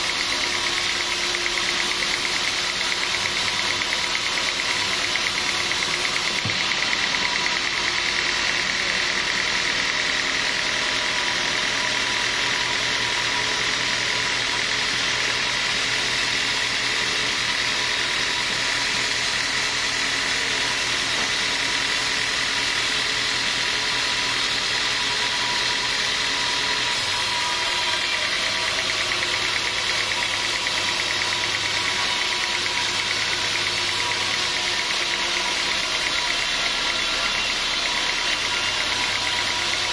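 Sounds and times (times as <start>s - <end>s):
mechanical rattle: 0.0s - 8.6s, 27.5s - 39.9s
sawmill machinery drone: 0.0s - 39.9s.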